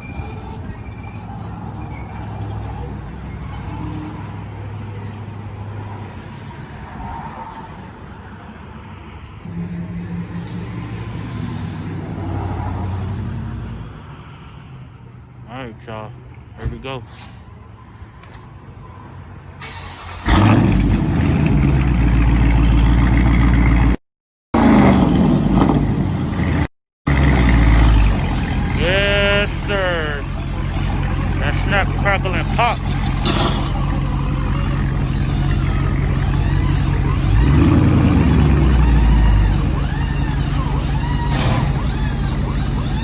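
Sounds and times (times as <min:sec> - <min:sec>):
car engine cranking: 0:19.6 - 0:23.9, 0:27.1 - 0:43.0
car engine idling: 0:25.2 - 0:43.0.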